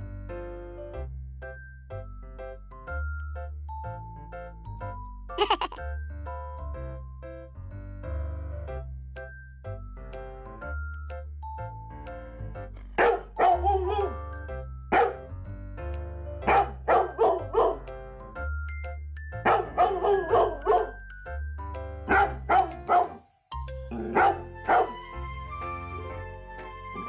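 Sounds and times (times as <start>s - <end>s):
background music: 0.0s - 27.0s
dog barking: 13.0s - 14.2s, 14.9s - 15.2s, 16.5s - 17.8s, 19.4s - 21.0s, 22.1s - 23.2s, 24.0s - 25.0s.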